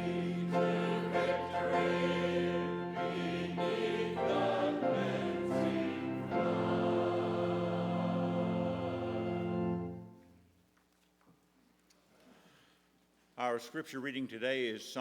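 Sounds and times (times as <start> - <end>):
choir singing a hymn: 0.0 - 10.2.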